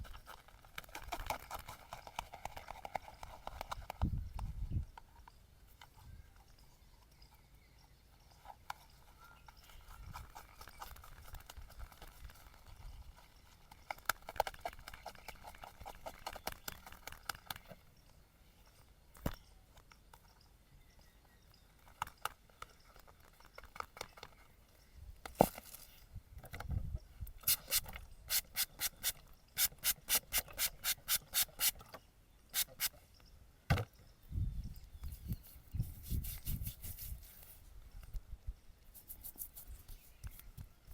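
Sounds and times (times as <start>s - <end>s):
straight razor scraping stubble: 27.4s - 31.8s, 32.6s - 33.0s, 35.1s - 37.6s, 38.9s - 40.5s.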